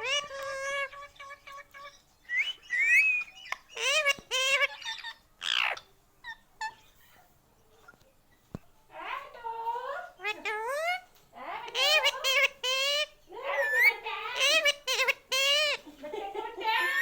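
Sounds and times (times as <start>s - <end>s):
parakeet calling and screeching: 0.0s - 7.3s, 10.0s - 15.8s.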